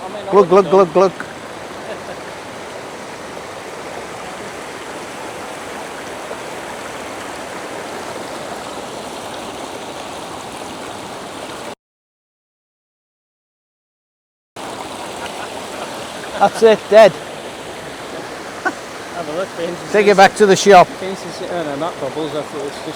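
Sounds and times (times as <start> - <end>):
waterfall rushing water: 0.0 - 11.8, 14.6 - 22.9.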